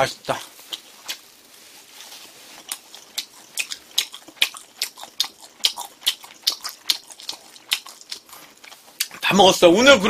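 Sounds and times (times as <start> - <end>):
person chewing food: 0.6 - 9.2
wet mouth clicks: 2.7 - 9.2.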